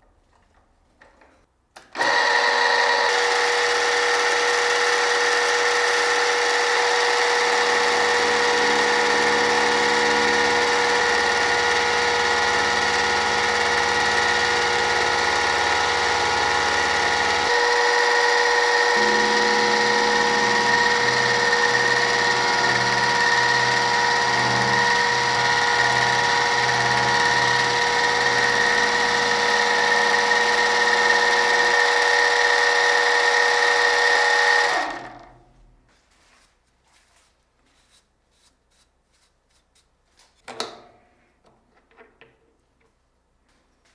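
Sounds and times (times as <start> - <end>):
machine tool whining: 2.0 - 35.4.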